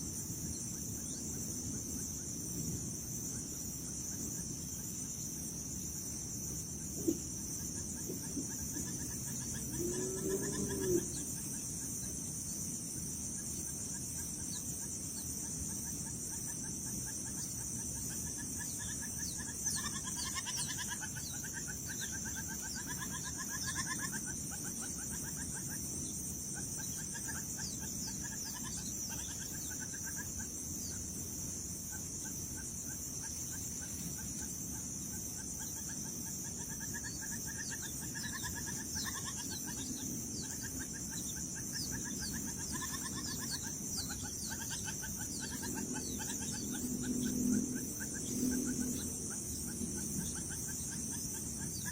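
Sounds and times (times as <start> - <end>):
low rumble of wind: 0.0 - 19.9, 38.8 - 51.9
high-pitched insect drone: 0.0 - 51.9
birds trilling: 7.4 - 51.9.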